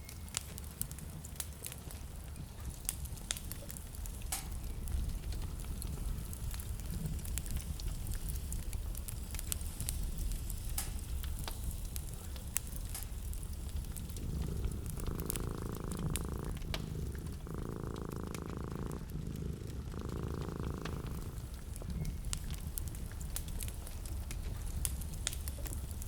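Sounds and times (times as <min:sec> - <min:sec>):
wood fire crackling and popping: 0:00.0 - 0:26.0
purring hum: 0:12.2 - 0:26.0
low rumble: 0:13.5 - 0:23.2.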